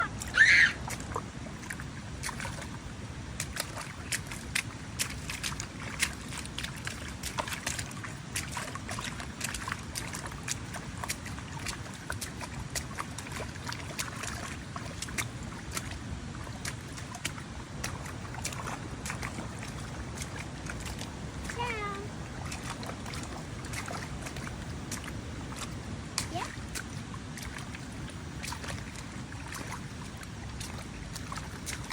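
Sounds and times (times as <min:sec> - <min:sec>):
animal call dipping in pitch: 0:00.0 - 0:00.8.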